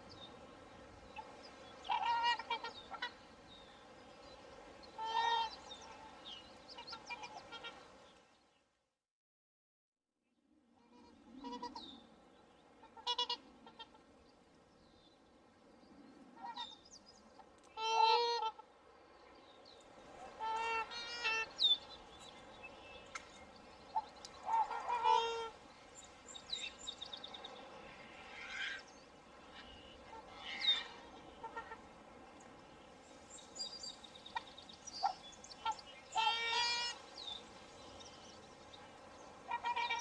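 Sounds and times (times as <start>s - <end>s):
swans honking: 1.2s - 3.5s, 4.9s - 8.0s, 10.9s - 12.0s, 12.8s - 14.1s, 17.7s - 18.7s, 20.1s - 22.2s, 23.9s - 25.6s, 27.9s - 32.0s, 34.3s - 37.2s, 39.3s - 40.0s.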